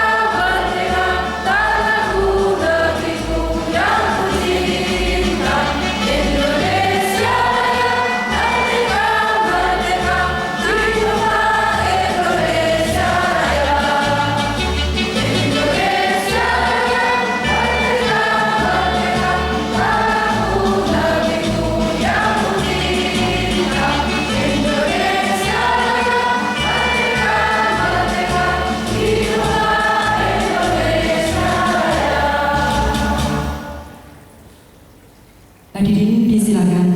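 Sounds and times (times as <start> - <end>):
mixed choir singing: 0.0 - 34.1.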